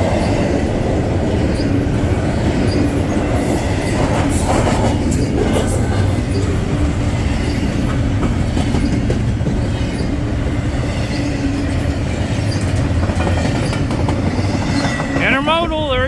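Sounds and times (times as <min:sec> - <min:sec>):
train wheels rumbling on rails: 0:00.0 - 0:16.0
clicking over rail joints: 0:11.8 - 0:15.2.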